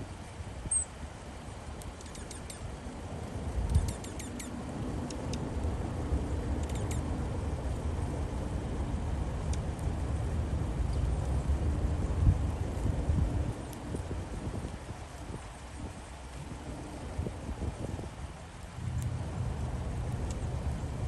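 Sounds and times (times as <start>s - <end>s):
wind rumble on microphone: 0.0s - 21.0s
small birds chirping: 2.0s - 2.7s, 3.7s - 4.6s, 6.6s - 7.1s.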